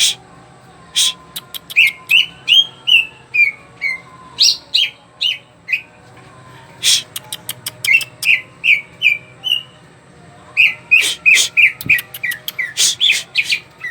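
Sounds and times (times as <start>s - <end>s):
bird chirping and whistling: 0.0s - 0.2s, 1.0s - 5.4s, 10.6s - 13.9s
harsh scratchy bird notes: 10.6s - 13.9s.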